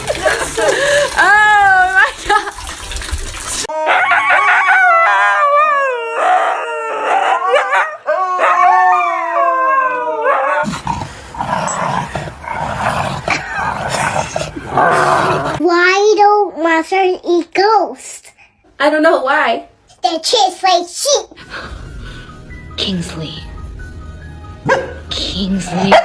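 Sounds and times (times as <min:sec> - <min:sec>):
dog howling: 0:03.7 - 0:10.7.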